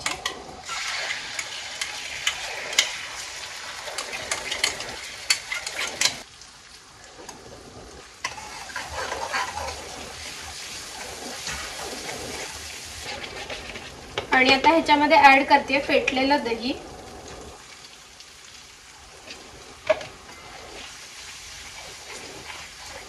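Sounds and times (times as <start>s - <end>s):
spoon scraping a pan: 0.0s - 3.1s, 3.9s - 6.2s, 8.2s - 14.8s, 21.6s - 23.0s
paste sizzling in hot oil: 0.0s - 7.3s, 7.9s - 16.5s, 18.4s - 23.0s.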